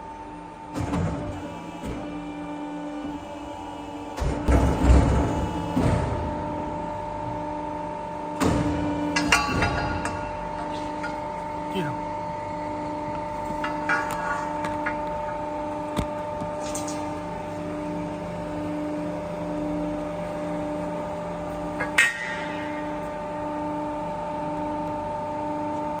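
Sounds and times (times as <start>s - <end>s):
machine humming: 0.0s - 26.0s
metal knocks: 8.6s - 11.3s, 13.5s - 15.5s.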